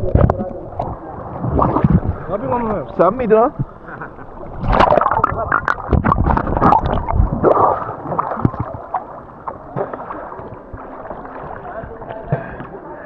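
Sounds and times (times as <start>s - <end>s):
paddle splashing water: 0.0s - 13.0s.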